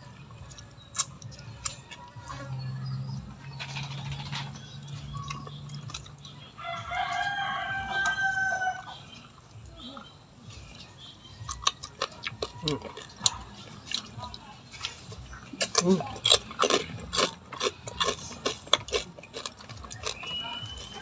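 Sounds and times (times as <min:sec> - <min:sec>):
rooster crowing: 0:06.6 - 0:09.0.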